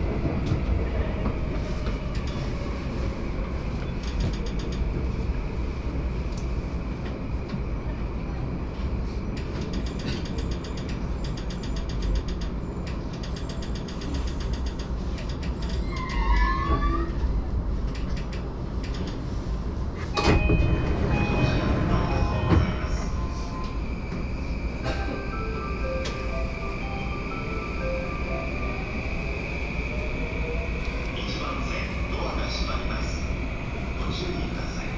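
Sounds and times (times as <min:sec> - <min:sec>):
train rumble inside carriage: 0:00.0 - 0:34.9.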